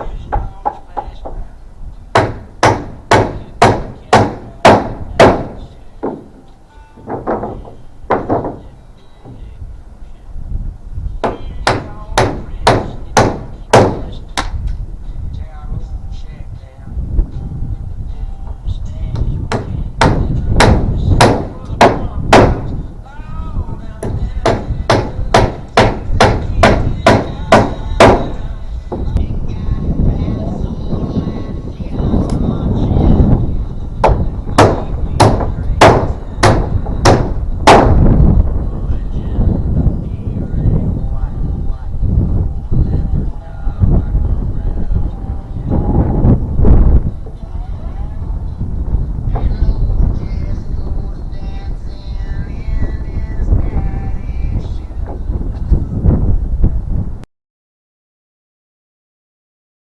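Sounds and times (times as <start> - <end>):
hammer driving nail into wood: 2.2 - 6.3, 11.2 - 14.6, 19.5 - 22.8, 24.0 - 28.4, 34.0 - 38.0.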